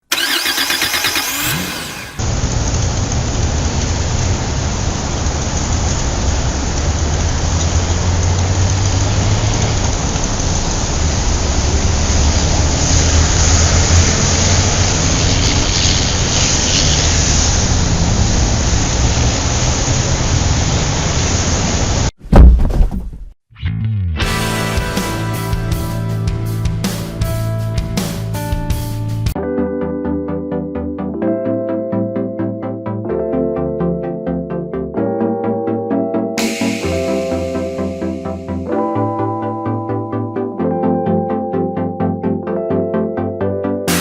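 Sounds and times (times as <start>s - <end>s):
vehicle engine droning: 0.1s - 22.1s.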